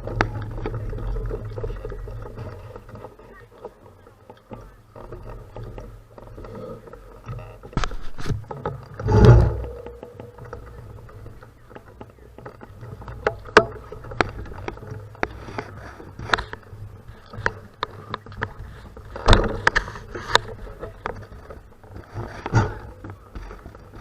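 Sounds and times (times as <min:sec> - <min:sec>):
bicycle tyres rumbling on gravel: 0:00.0 - 0:24.0
bike rattling over bumps: 0:00.0 - 0:24.0.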